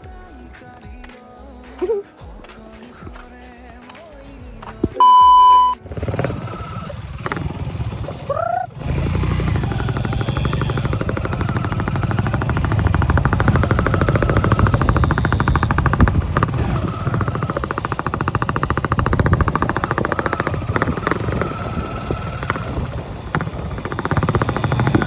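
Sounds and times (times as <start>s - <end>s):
motorcycle engine revving: 4.9s - 25.0s
short loud beep: 5.0s - 5.8s.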